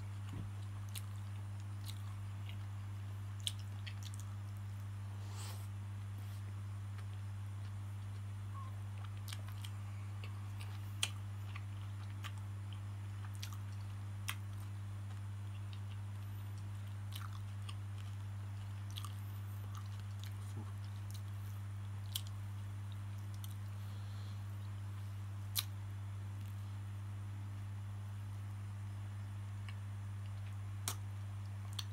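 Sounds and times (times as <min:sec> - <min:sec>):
low electrical hum: 0:00.0 - 0:31.9
chewing and mouth sounds: 0:00.3 - 0:02.8, 0:03.4 - 0:04.9, 0:07.0 - 0:23.7, 0:31.6 - 0:31.9.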